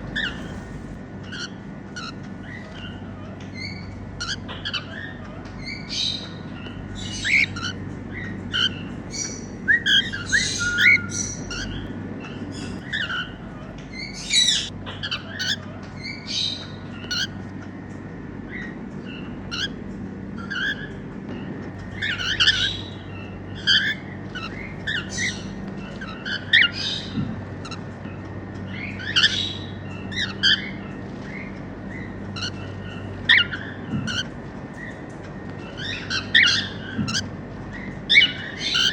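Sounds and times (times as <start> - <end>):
cockatiels chirping and whistling: 0.0 - 2.8, 7.0 - 11.9, 12.5 - 13.4, 14.0 - 17.3, 19.5 - 19.8, 21.9 - 22.9, 23.7 - 27.8, 38.1 - 38.9
steady low hum: 0.0 - 38.9.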